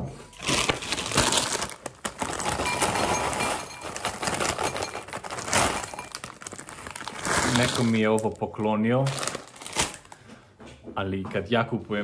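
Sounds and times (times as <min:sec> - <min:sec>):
plastic snack bag crinkling: 0:00.3 - 0:10.2
chips pouring into a bowl: 0:00.4 - 0:08.4.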